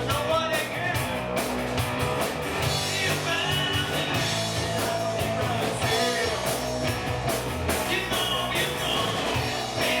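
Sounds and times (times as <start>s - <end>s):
rock band playing: 0.0s - 10.0s
person singing: 2.7s - 6.8s, 7.8s - 10.0s.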